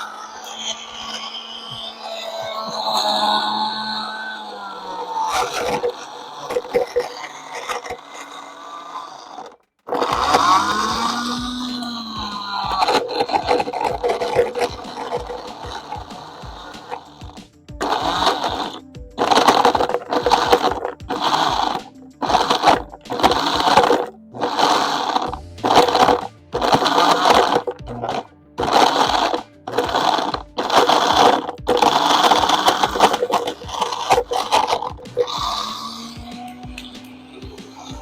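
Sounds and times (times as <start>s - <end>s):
blender grinding brick in bursts: 0.0s - 38.0s
background music: 9.5s - 38.0s.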